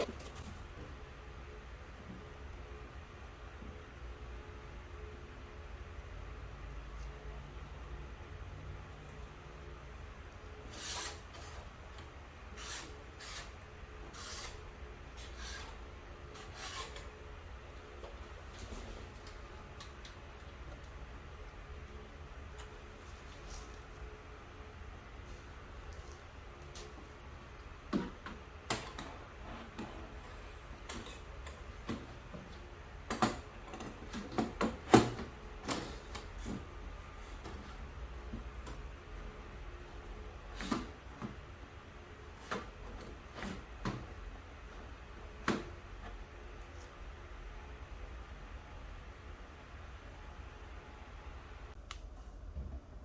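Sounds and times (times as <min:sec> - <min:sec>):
rasping rubbing strokes: 0:12.6 - 0:14.6.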